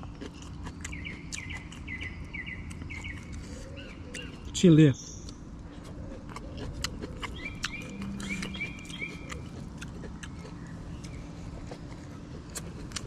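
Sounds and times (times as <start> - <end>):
person chewing with mouth clicks: 0.0 - 4.6, 5.2 - 13.0
small bird chirps: 0.2 - 5.4, 6.9 - 11.5.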